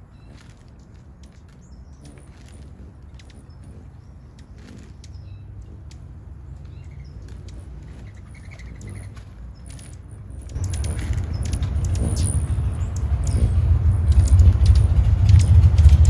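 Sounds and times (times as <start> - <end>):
small bird chirping: 0.0 - 15.7
light clicks: 8.4 - 16.0
low rumble: 10.4 - 16.0.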